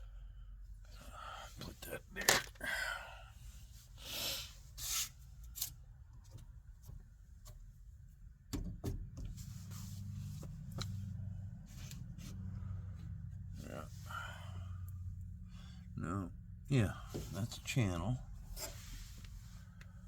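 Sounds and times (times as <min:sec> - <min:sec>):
steady low hum: 0:09.1 - 0:20.0
scraping rustles: 0:18.4 - 0:19.8.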